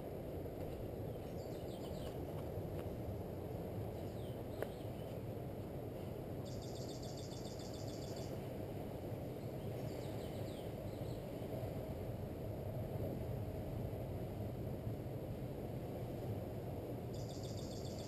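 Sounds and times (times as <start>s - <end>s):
low outdoor rumble: 0.0s - 18.0s
small birds chirping: 4.0s - 5.2s
bird trill: 6.5s - 8.3s, 17.2s - 18.0s.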